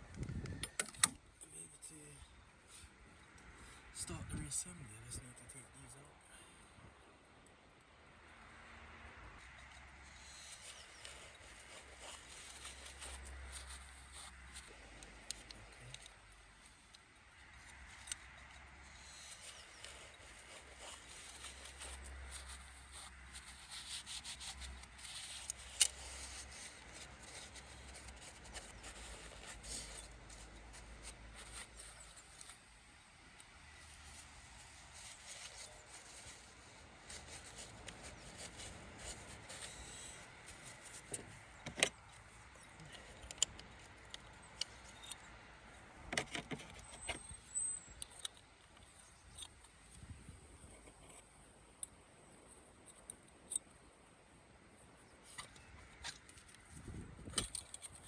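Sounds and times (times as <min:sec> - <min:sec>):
metal parts rubbing and scraping: 0:09.4 - 0:32.7, 0:33.8 - 0:45.3.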